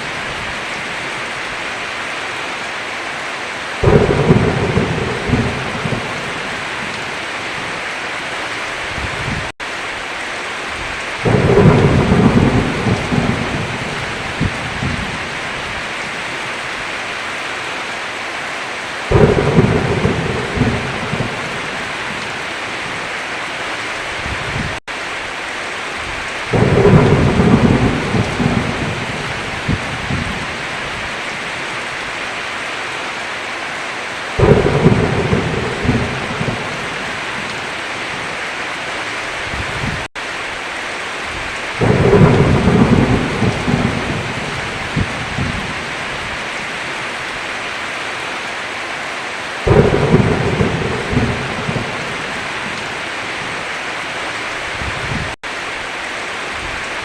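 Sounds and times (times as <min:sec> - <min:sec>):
heavy rain falling: 0:00.0 - 0:57.0
thunder rumbling: 0:03.8 - 0:07.8, 0:10.8 - 0:16.2, 0:19.1 - 0:23.1, 0:26.0 - 0:31.6, 0:34.4 - 0:38.4, 0:39.4 - 0:40.1, 0:41.3 - 0:46.8, 0:49.6 - 0:53.6.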